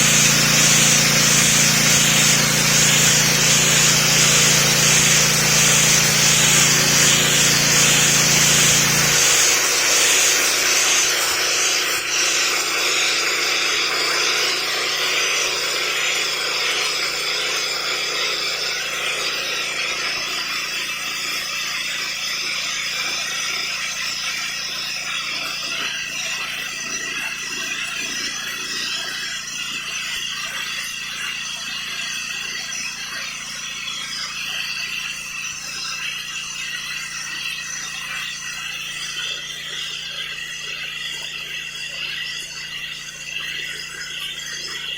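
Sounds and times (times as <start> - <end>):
machine low hum: 0.0 - 12.8
pressure cleaner water jet hissing: 0.0 - 44.9.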